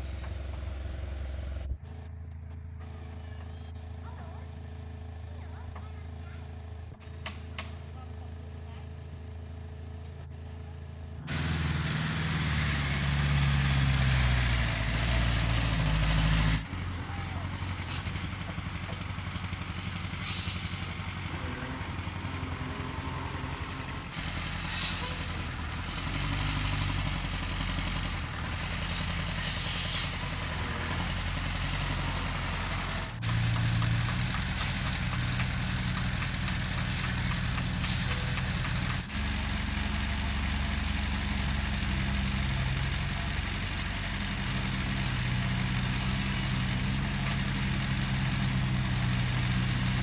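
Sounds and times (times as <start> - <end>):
heavy diesel engines running: 0.0 - 50.0
short hisses: 19.8 - 21.0, 24.6 - 25.4, 29.0 - 30.2.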